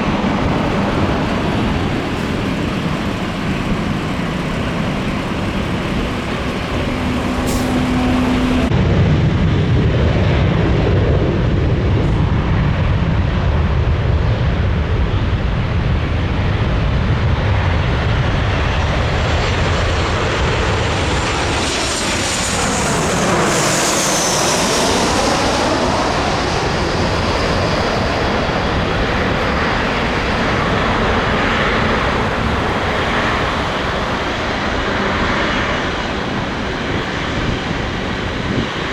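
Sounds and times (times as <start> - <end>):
jet airliner rumble and whine: 0.0 - 38.9.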